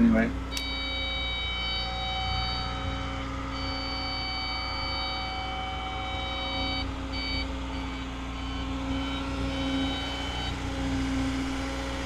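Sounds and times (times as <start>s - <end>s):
excavator diesel engine running: 0.0s - 12.0s
high-pitched whine: 0.0s - 12.0s.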